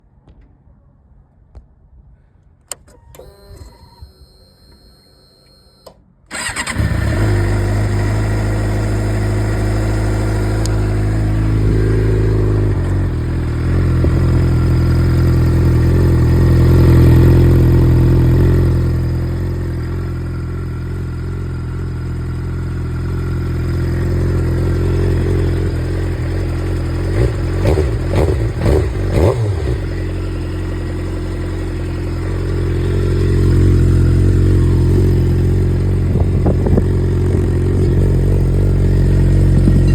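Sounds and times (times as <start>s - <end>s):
motorcycle throttle blips: 2.7s - 39.9s
motorcycle engine idling: 6.3s - 39.9s.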